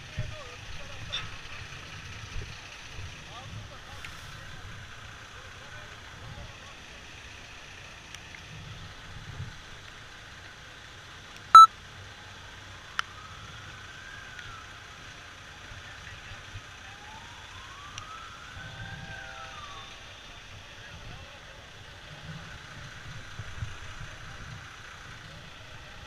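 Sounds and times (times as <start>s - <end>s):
emergency siren wailing: 12.8s - 20.7s.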